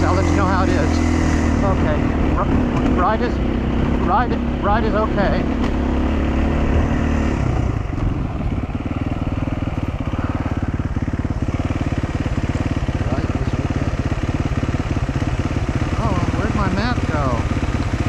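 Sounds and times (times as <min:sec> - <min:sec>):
motorcycle engine under load: 0:00.0 - 0:18.0.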